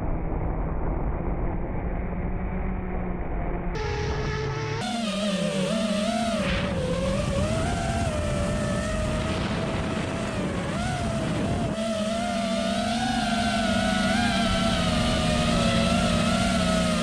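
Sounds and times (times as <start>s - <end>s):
drone motors whining: 1.8s - 17.0s
wind rumbling on microphone: 6.5s - 11.9s.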